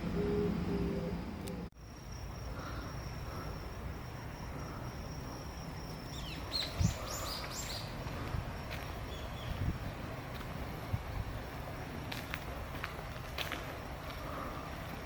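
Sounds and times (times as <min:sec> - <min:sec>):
small bird chirping: 0:05.6 - 0:08.0.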